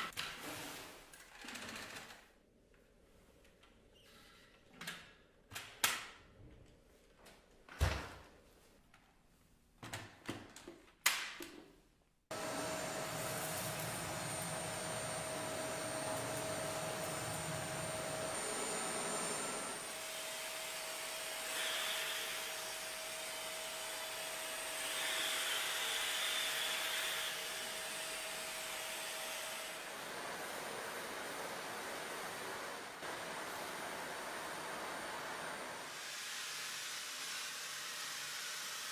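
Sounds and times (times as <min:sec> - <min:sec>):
vacuum cleaner running with whine: 0:12.3 - 0:38.9.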